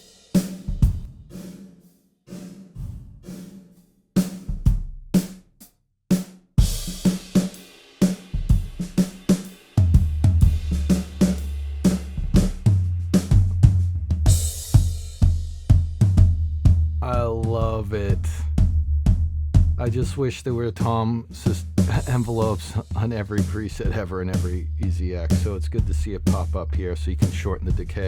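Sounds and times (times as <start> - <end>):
cymbals and hi-hat: 0.0 - 16.3, 21.3 - 26.6
drum kit playing groove: 0.0 - 28.0.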